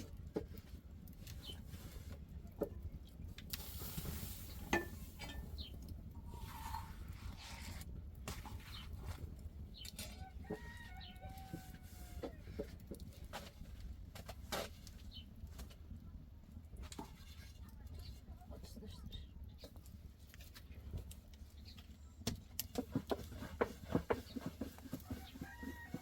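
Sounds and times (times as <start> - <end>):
low steady rumble: 0.0 - 14.2.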